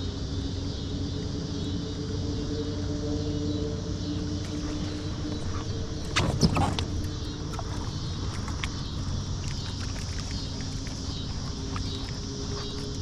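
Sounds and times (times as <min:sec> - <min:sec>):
distant motor drone: 0:00.0 - 0:13.0
faint steady tones: 0:00.0 - 0:13.0.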